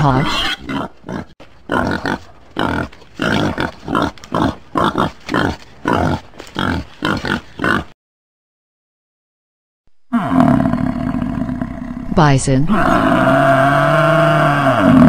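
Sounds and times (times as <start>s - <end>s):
warthog grunting: 0.0s - 7.9s.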